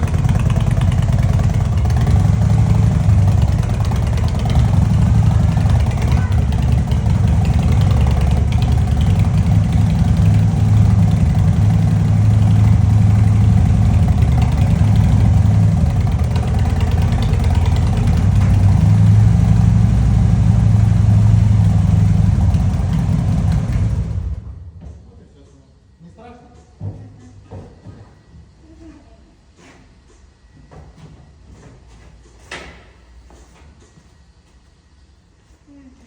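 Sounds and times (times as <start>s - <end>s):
motorcycle engine idling: 0.0s - 24.6s.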